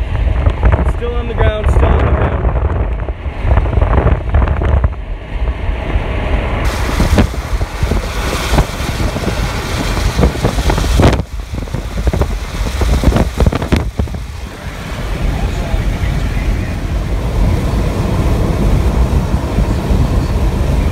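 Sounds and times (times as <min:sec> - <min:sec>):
wind buffeting microphone: 0:00.0 - 0:20.9
loud hiss: 0:06.6 - 0:16.8.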